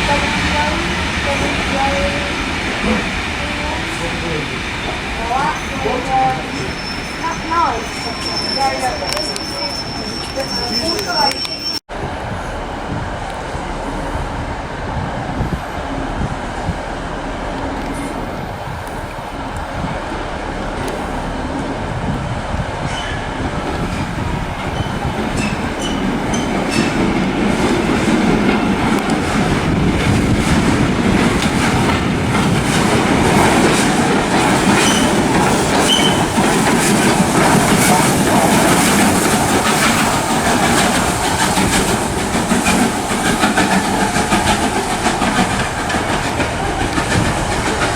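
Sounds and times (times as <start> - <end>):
train running on rails: 0.0 - 47.9
high wheel squeaks: 3.8 - 12.3, 31.2 - 47.9.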